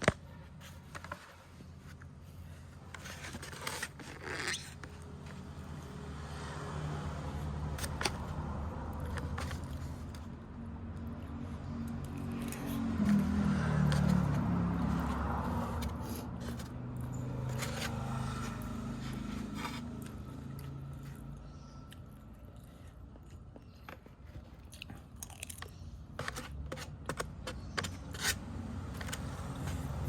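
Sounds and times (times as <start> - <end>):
crunchy food being chewed: 11.0 - 26.6.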